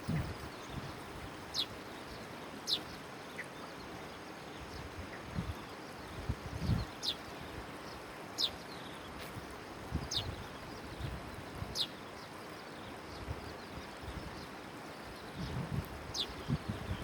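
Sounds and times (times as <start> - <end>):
outdoor noise hiss: 0.0 - 17.0
bird chirping: 1.5 - 3.8, 7.9 - 9.2.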